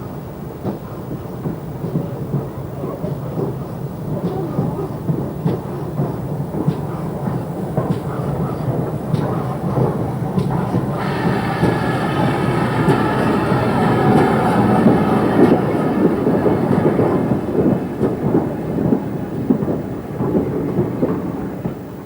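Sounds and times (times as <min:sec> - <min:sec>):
steam train rumbling past: 0:00.0 - 0:22.0
wheels clattering on rails: 0:00.0 - 0:22.0
high held tone: 0:10.8 - 0:18.9.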